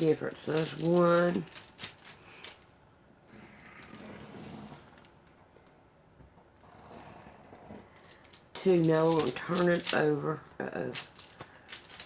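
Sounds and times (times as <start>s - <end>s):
fabric rustling: 0.0s - 2.6s, 7.8s - 10.1s, 10.9s - 12.0s.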